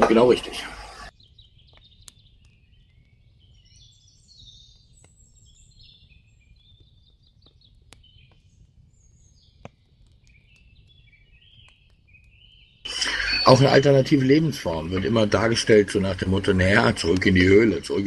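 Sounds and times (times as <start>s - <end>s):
birds chirping and twittering: 0.0s - 18.0s
low steady hum: 12.9s - 18.0s.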